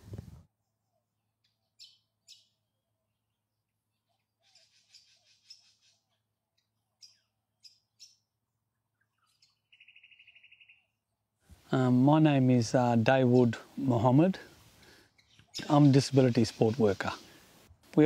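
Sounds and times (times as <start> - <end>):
faint bird chirps: 0.8 - 11.0, 15.1 - 17.4.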